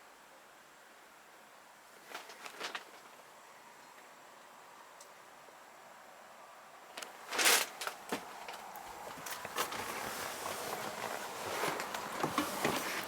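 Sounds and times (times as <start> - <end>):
small clicks and rustling: 2.0 - 3.2, 7.0 - 13.0.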